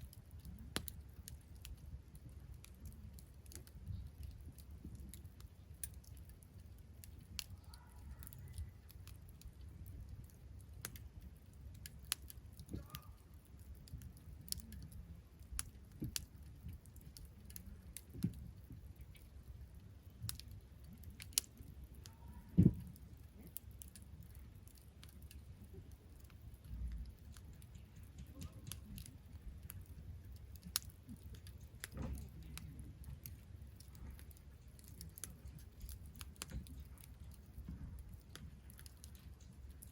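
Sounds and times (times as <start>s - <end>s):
campfire crackling: 0.0s - 39.9s
low steady rumble: 0.0s - 39.9s
loud fire pop: 22.5s - 22.8s.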